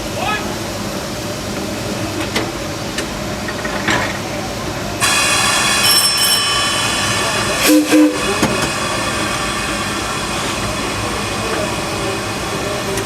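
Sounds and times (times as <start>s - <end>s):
steam locomotive cab noise: 0.0s - 13.0s
steam hiss with ringing tones: 5.0s - 13.0s.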